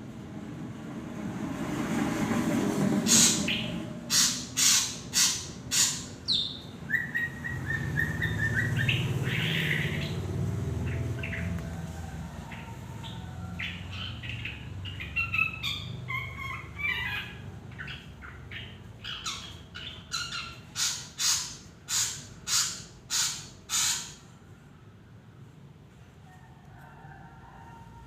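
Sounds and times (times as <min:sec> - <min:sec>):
loud harsh bird calls: 0:03.0 - 0:11.6, 0:12.4 - 0:24.4
bird whistles and chirps: 0:03.1 - 0:10.2.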